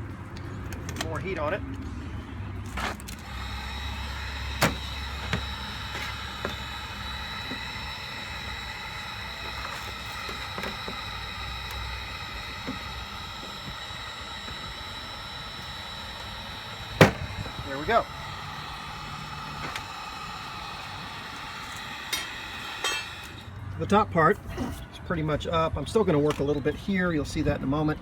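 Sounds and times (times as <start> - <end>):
heat gun whining: 2.7 - 23.9.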